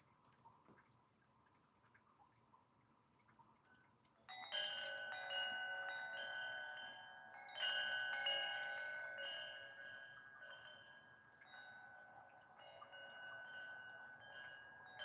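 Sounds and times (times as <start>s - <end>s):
wind chimes ringing: 4.3s - 15.0s.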